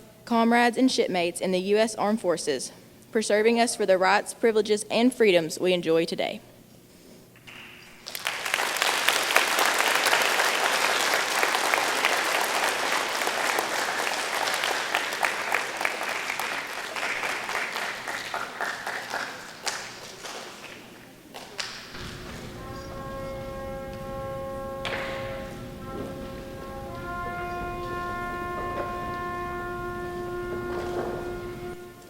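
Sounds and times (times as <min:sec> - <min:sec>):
audience applauding: 0:08.0 - 0:22.6
brass instrument long notes: 0:08.3 - 0:19.2, 0:21.9 - 0:32.0.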